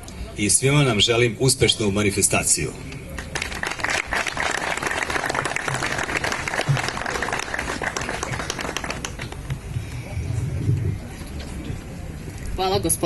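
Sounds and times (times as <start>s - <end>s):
audience applauding: 3.1s - 9.6s.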